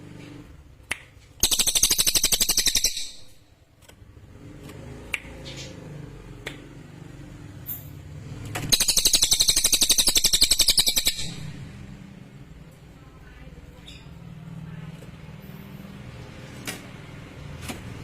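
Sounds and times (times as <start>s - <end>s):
songbird trilling: 1.4s - 3.4s, 8.7s - 11.5s.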